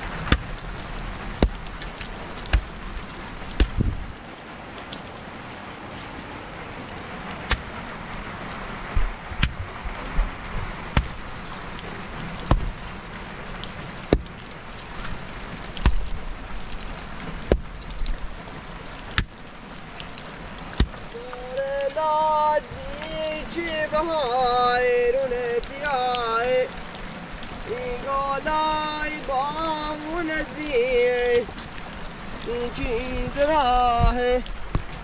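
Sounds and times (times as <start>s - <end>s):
single water drips: 0.0s - 4.3s
steady rain falling: 0.0s - 35.0s.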